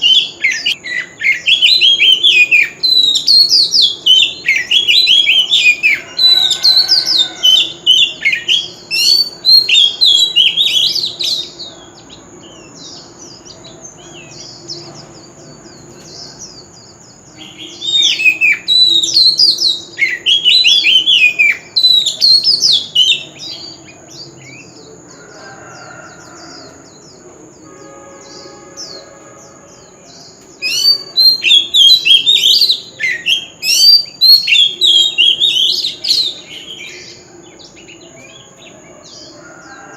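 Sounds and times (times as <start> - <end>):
bird singing whistled phrases: 0.0 - 11.5, 17.4 - 23.7, 30.6 - 37.0.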